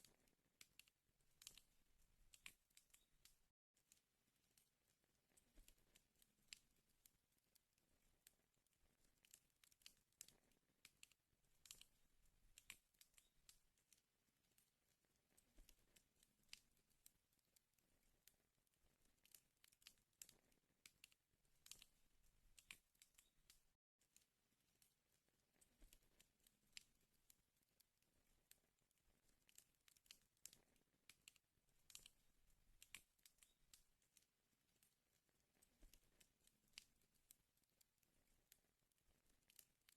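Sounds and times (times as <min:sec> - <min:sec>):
wood fire crackling: 0:00.0 - 0:03.5, 0:07.8 - 0:16.9, 0:17.8 - 0:23.8, 0:27.9 - 0:37.8.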